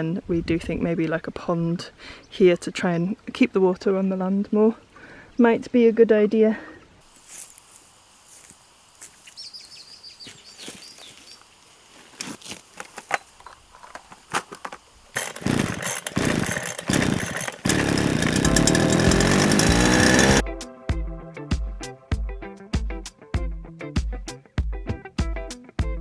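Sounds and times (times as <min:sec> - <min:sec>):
small engine running and revving: 0:15.2 - 0:20.4.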